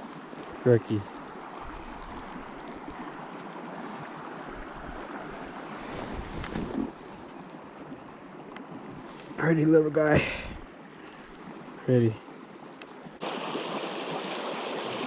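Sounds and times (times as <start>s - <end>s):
stream rushing over rocks: 0.0s - 6.2s, 13.2s - 15.0s.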